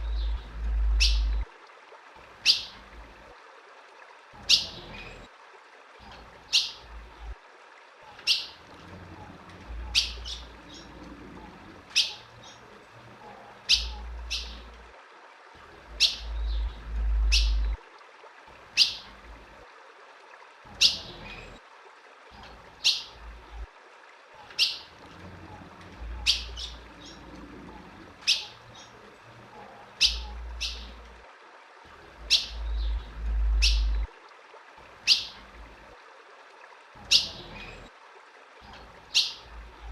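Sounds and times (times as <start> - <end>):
low rumble: 0.0 - 1.5, 16.2 - 17.8, 32.6 - 34.1.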